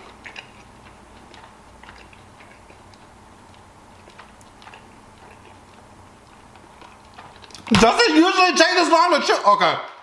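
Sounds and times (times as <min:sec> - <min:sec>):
chewing with mouth clicks: 0:00.0 - 0:07.8
low steady hum: 0:00.0 - 0:10.0.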